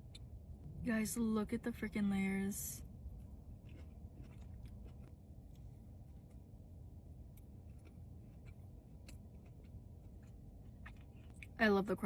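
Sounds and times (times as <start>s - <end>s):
low steady hum: 0.0s - 12.0s
faint chewing: 2.8s - 11.6s.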